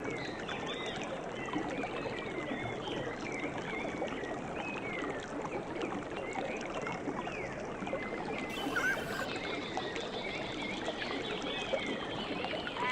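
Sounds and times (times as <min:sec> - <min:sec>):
rushing water of a cascade: 0:08.5 - 0:09.3, 0:12.3 - 0:12.9
small birds chirping: 0:08.5 - 0:09.3.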